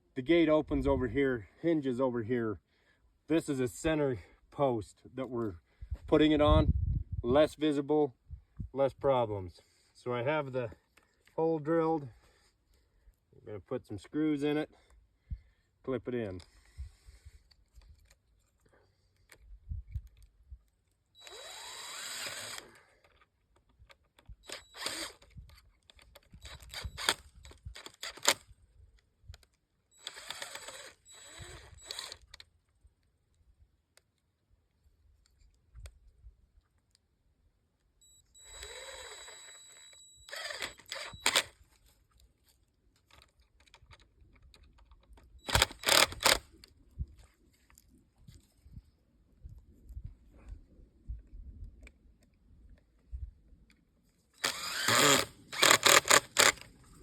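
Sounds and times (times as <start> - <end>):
power drill driving screws into wood: 21.2 - 23.1, 24.4 - 25.5, 26.3 - 28.5, 30.0 - 32.4, 38.4 - 41.6, 45.4 - 46.6, 54.4 - 56.7.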